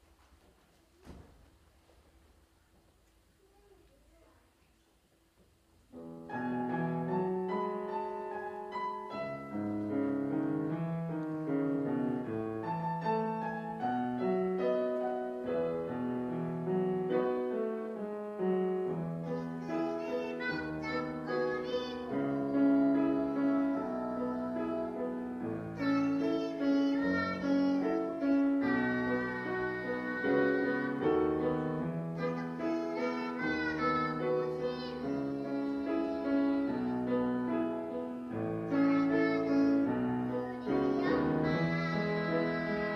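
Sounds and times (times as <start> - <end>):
young child singing: 3.3 - 4.9, 18.8 - 42.9
piano accompaniment: 5.9 - 42.9.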